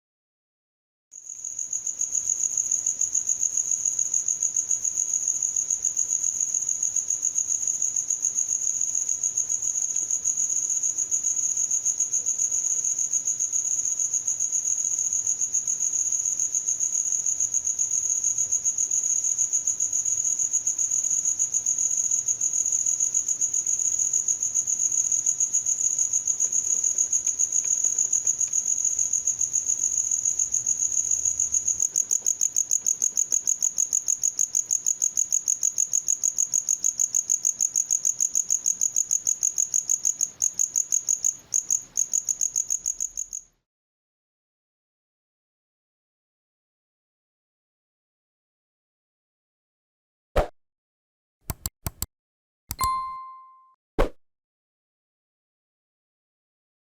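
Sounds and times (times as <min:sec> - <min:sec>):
cricket chirping: 0:01.2 - 0:43.5.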